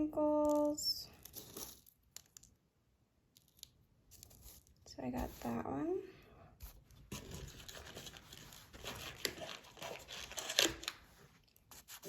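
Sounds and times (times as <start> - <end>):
wrapping material crinkling: 7.6 - 11.4.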